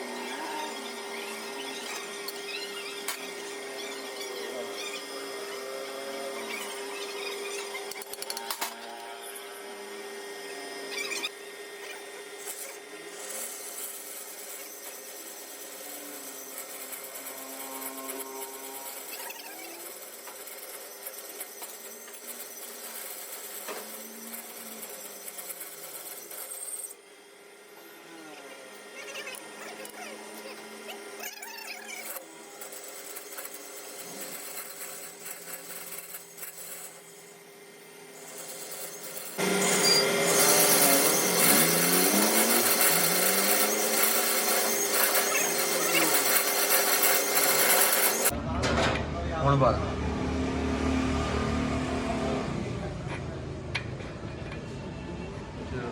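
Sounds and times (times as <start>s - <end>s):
lathe humming: 0.0s - 48.3s
metal scraping: 12.5s - 26.9s.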